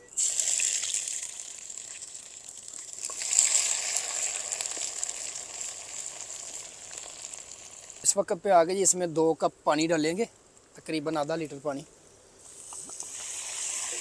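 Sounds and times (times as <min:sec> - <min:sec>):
paste sizzling in hot fat: 0:00.1 - 0:08.2, 0:12.4 - 0:14.0.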